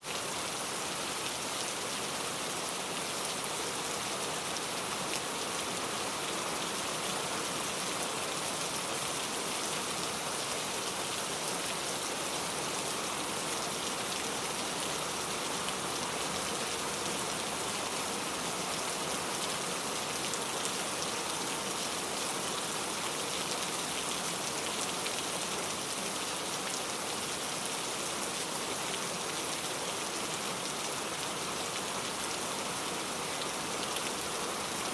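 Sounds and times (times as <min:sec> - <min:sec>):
steady rain: 0:00.0 - 0:34.9.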